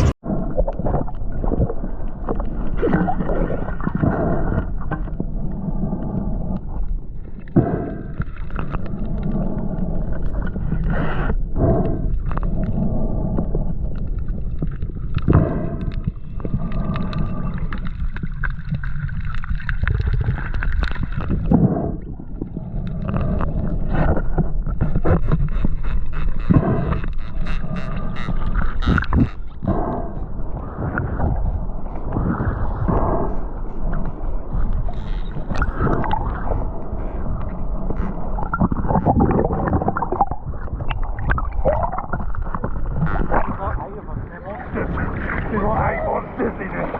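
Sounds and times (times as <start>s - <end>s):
wind noise: 14.3s - 46.9s.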